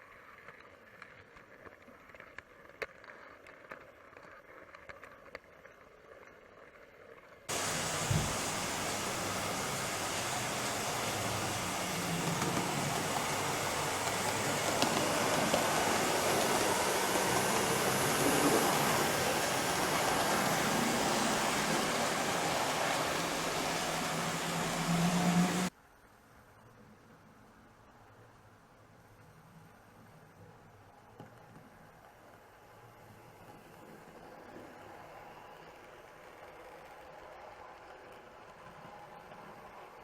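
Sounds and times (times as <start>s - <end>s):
model train wheels on track: 0.0s - 25.8s, 29.0s - 40.0s
low motor hum: 7.5s - 25.7s.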